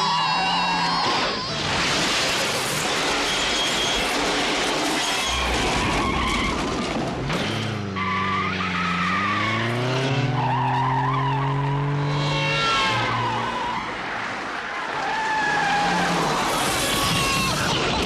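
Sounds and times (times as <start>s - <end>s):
tyres squealing and skidding: 0.0s - 18.0s
car engine revving hard: 9.1s - 12.7s.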